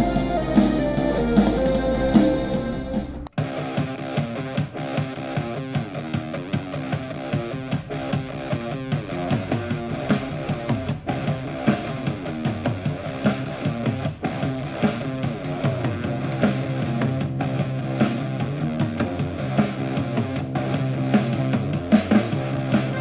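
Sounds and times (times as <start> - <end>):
punk rock music from small speaker: 0.0 - 23.0.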